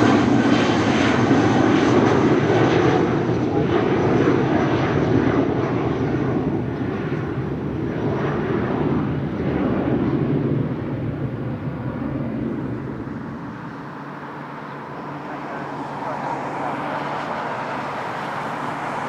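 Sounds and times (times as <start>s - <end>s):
jet airliner engines rumbling: 0.0s - 19.0s.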